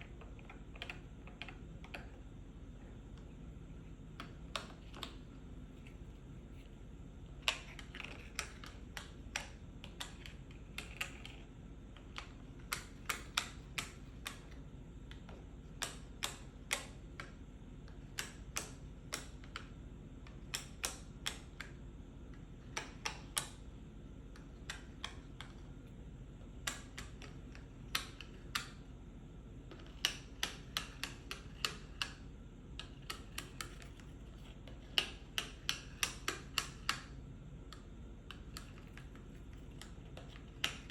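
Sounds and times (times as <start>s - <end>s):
faint low hum: 0.0s - 40.9s
fingers tapping on a pill box: 29.7s - 40.9s.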